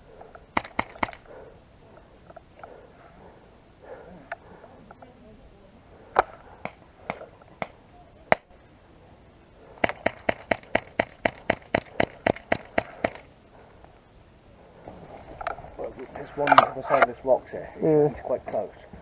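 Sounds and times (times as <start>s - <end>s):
airsoft gun shots: 0.6s - 1.4s, 6.2s - 8.6s, 9.8s - 13.3s.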